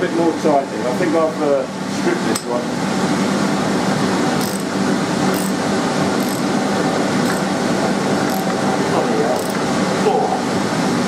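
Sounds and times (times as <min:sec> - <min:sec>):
fan-like hum: 0:00.0 - 0:11.0.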